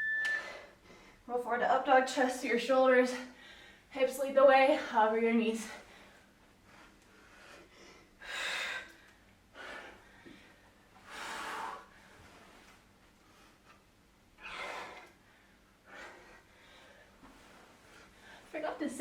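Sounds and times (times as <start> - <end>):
woman breathing hard: 5.8 - 12.3, 14.4 - 18.5.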